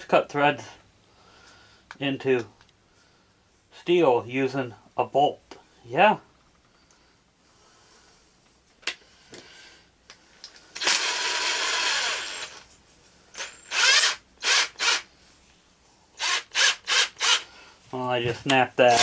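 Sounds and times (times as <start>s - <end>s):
power drill driving bolt: 10.8s - 12.7s, 13.4s - 15.1s, 16.2s - 17.4s.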